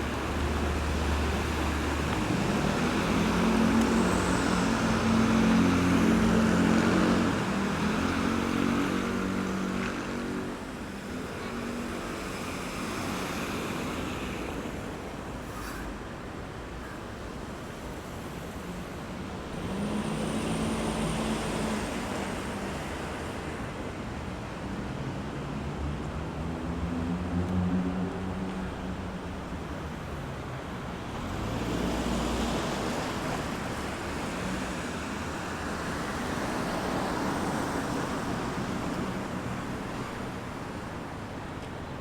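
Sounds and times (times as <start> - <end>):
engine passing by: 0.0 - 13.8, 19.4 - 23.6
tyre noise of passing cars: 0.0 - 42.0.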